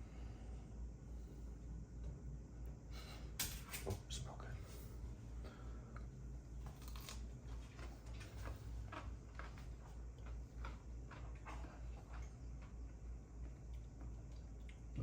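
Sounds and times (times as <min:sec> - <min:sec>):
low steady hum: 0:00.0 - 0:15.0
person chewing crunchy pickles: 0:06.6 - 0:15.0.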